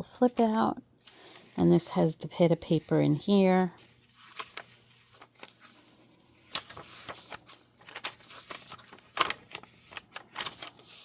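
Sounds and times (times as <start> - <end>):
paper pages rustling: 0.2 - 1.8, 2.6 - 11.0
sharp paper crackles: 3.6 - 11.0.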